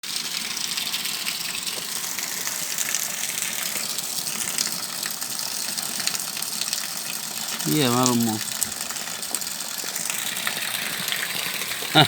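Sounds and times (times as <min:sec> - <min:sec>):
heavy rain falling: 0:07.6 - 0:08.7.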